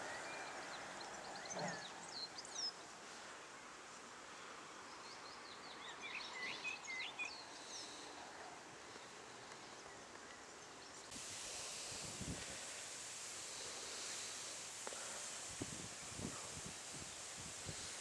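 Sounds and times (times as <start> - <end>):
faint outdoor background noise: 0.0 - 18.0
bright hiss: 7.5 - 18.0.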